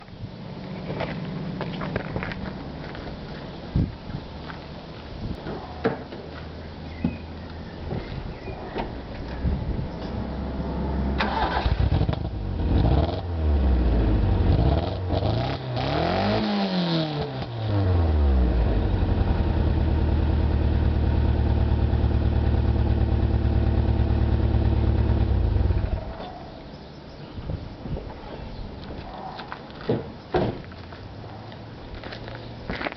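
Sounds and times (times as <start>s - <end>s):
misfiring car engine revving: 11.2s - 25.7s.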